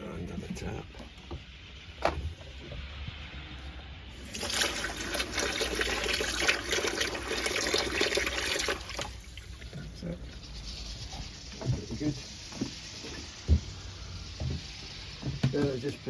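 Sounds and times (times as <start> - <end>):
tap water gushing: 4.1 - 10.4.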